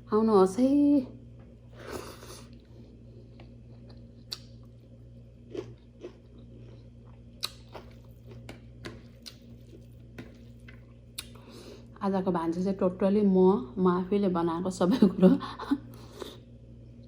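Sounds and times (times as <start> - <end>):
steady low hum: 0.0 - 17.0
person chewing food: 1.7 - 11.9
wet mouth clicks and smacks: 4.3 - 4.5, 7.4 - 9.5.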